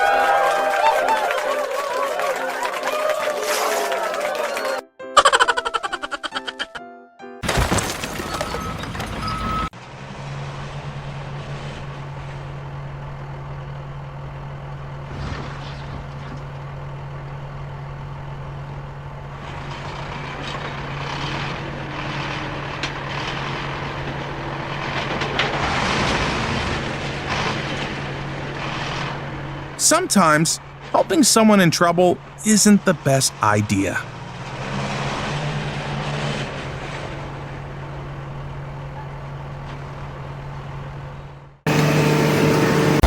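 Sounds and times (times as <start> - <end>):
heavy vehicle engine humming: 8.0 - 43.0.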